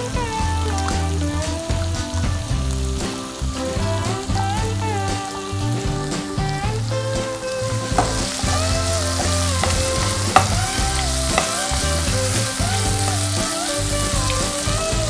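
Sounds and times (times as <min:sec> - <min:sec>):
food sizzling in a pan: 0:00.0 - 0:15.0
soft background music: 0:00.0 - 0:15.0
wooden spatula knocking on pan: 0:07.9 - 0:13.5.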